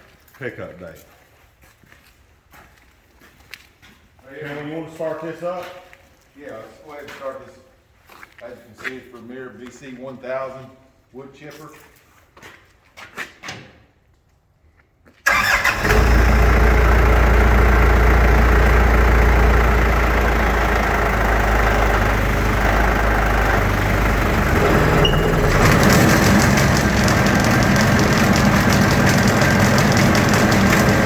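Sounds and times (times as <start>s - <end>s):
chipper engine starting and running: 15.3s - 31.0s.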